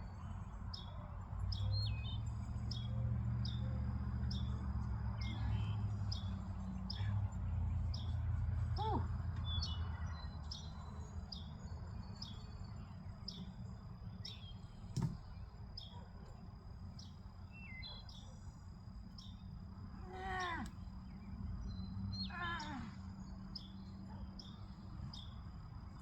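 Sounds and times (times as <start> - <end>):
bird chirping: 0.0 - 26.0
low outdoor rumble: 0.0 - 26.0
falling bird calls: 20.0 - 25.3.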